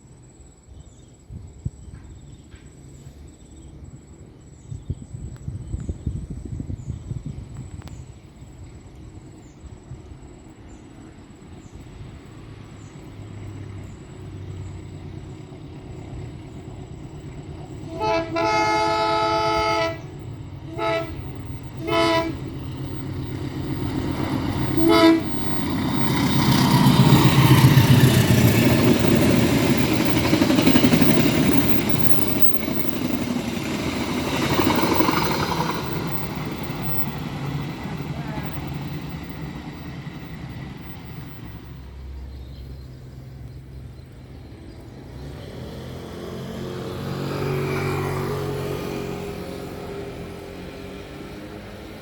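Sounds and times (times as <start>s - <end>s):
train passing with diesel rumble: 0.0s - 52.0s
diesel locomotive horn: 17.8s - 26.6s.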